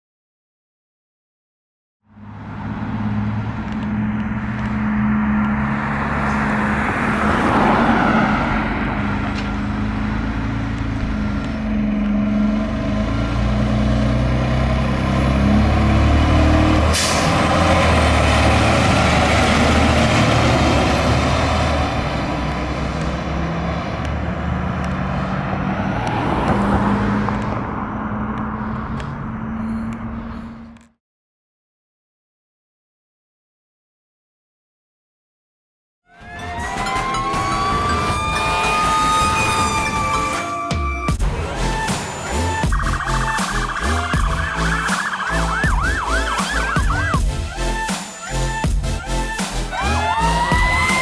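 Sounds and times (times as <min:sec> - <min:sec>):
fire engine diesel drone: 0:02.1 - 0:30.8, 0:36.2 - 0:49.8
air brake hiss: 0:16.9 - 0:17.4.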